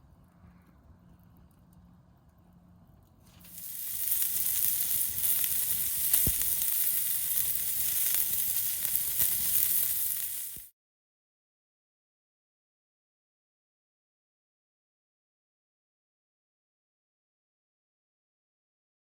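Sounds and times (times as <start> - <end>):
campfire crackles: 3.3 - 10.7
food sizzling in a hot pan: 3.4 - 10.7.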